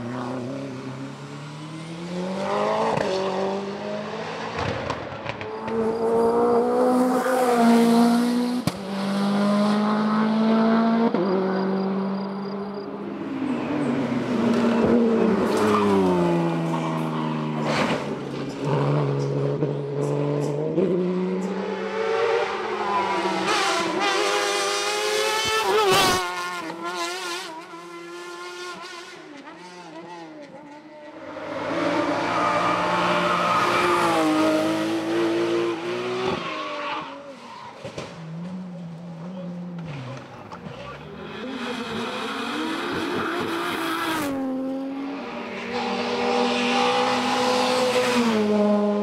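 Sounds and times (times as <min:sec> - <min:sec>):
race car engine revving: 0:38.1 - 0:49.0.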